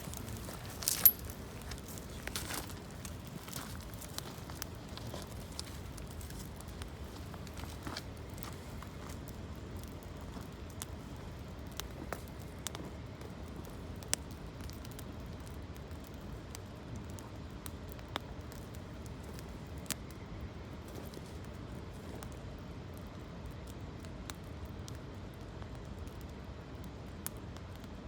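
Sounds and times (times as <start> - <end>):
sharp pops of burning wood: 0.0 - 20.2
campfire crackling: 0.0 - 28.0
steady low rush of fire: 0.0 - 28.0.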